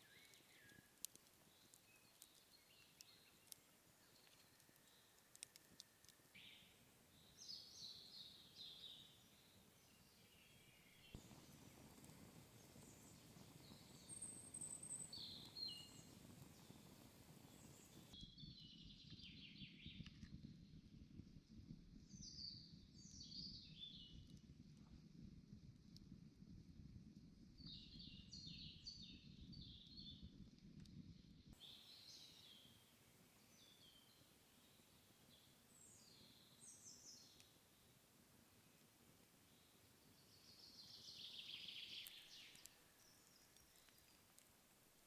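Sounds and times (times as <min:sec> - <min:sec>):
songbirds chirping: 0:00.0 - 0:18.8, 0:31.6 - 0:45.0
faint background noise: 0:00.0 - 0:19.2, 0:30.2 - 0:45.0.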